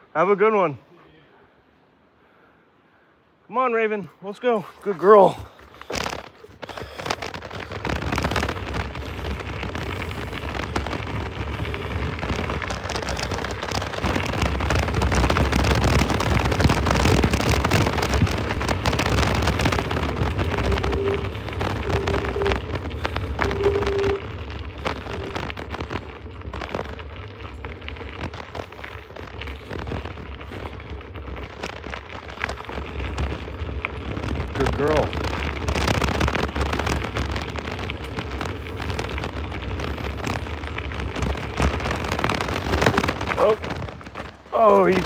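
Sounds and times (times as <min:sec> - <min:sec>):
scooter wheels rolling on dirt: 0:03.5 - 0:45.0
short tones: 0:20.4 - 0:25.4.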